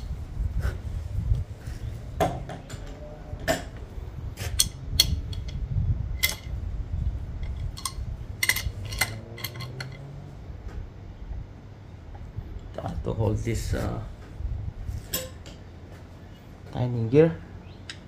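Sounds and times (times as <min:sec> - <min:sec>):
low steady hum: 0:00.0 - 0:18.0
metal tools clinking: 0:06.2 - 0:06.6, 0:07.4 - 0:10.2.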